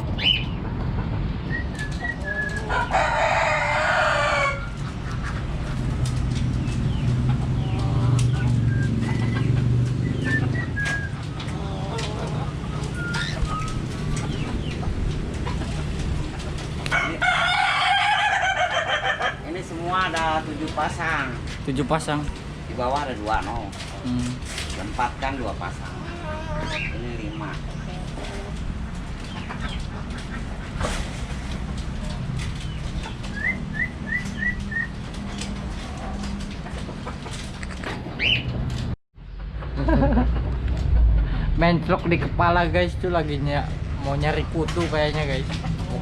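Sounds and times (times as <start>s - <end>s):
budgerigars chirping: 0.1s - 0.6s, 6.6s - 15.8s, 25.9s - 28.5s, 29.2s - 31.0s, 32.6s - 35.0s, 38.1s - 38.5s.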